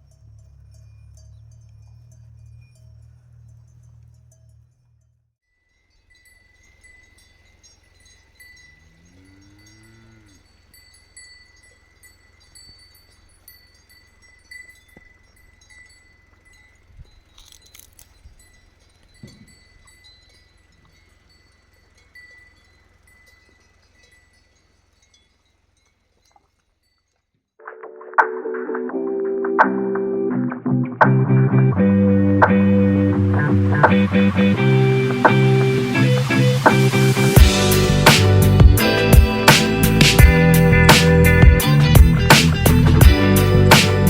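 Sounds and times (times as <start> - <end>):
faint high tinkling: 0.0 - 27.6.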